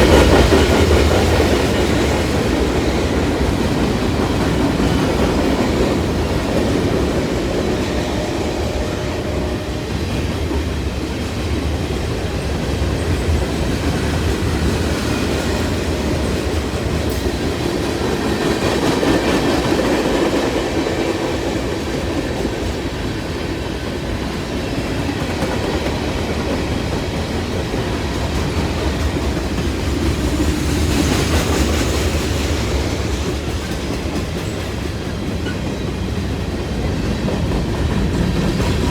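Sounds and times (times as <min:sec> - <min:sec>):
freight train rumbling past: 0:00.0 - 0:38.9
train wheels clicking over rail joints: 0:00.0 - 0:38.9.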